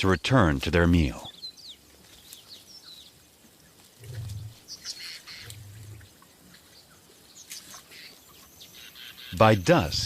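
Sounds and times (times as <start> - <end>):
small birds chirping: 0.0 - 10.0
lions growling: 3.8 - 6.8.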